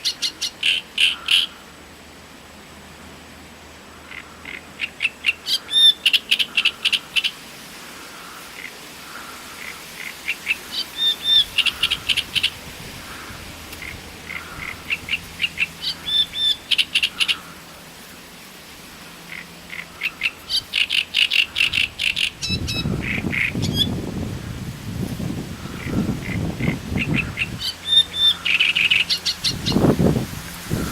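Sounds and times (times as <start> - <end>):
warbler singing harsh notes: 13.8 - 17.6, 19.7 - 24.0, 25.6 - 30.9.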